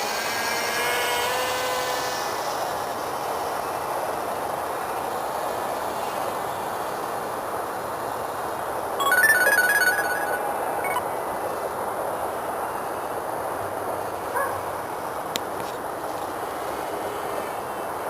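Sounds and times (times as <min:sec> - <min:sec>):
steady noisy hum: 0:00.0 - 0:18.0
phone beeping melody: 0:09.0 - 0:11.1.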